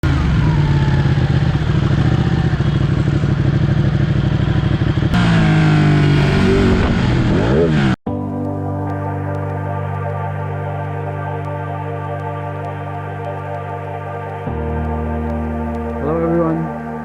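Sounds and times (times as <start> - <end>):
motorcycle engine revving: 0.0 - 8.0
music: 8.1 - 17.0.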